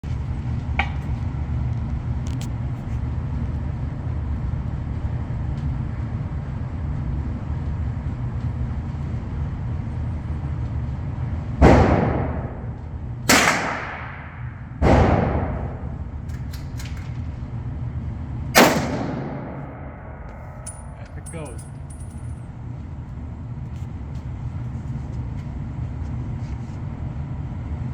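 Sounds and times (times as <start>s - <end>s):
low rumble: 0.0s - 27.9s
rifle shots with echo: 11.6s - 16.1s, 18.6s - 20.9s.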